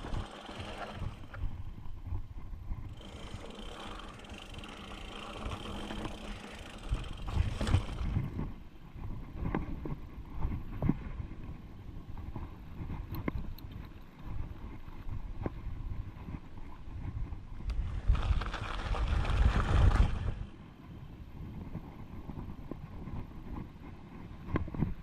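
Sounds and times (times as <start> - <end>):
rattling bike parts: 0.0 - 1.6, 2.8 - 8.4
bike tyres rumbling over rock: 0.0 - 8.6, 17.8 - 20.5.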